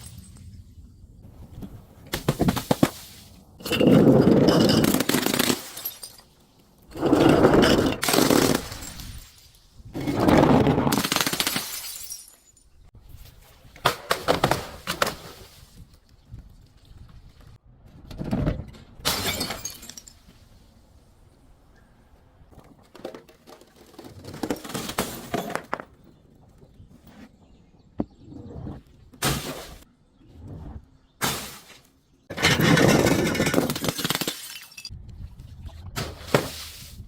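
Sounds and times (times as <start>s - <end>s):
glass bottles smashing: 3.6s - 6.4s, 7.1s - 9.6s, 10.9s - 12.8s, 19.1s - 20.3s, 24.4s - 25.7s, 32.3s - 34.9s.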